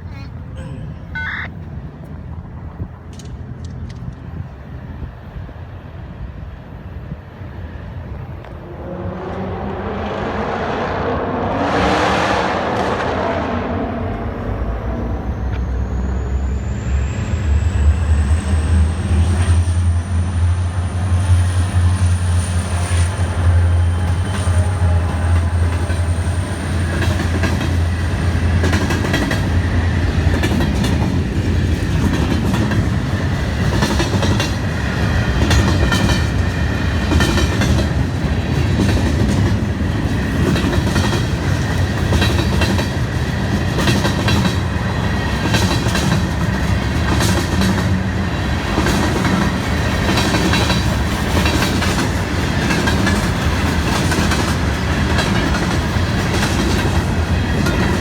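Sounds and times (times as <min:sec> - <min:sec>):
train cars rumbling past: 0:00.0 - 0:58.0
train wheels clacking over rail joints: 0:23.6 - 0:58.0.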